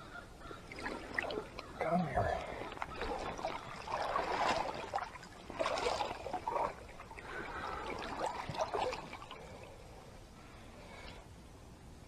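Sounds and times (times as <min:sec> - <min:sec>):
water sloshing and splashing: 0:00.5 - 0:10.1
stream flowing: 0:00.5 - 0:10.2.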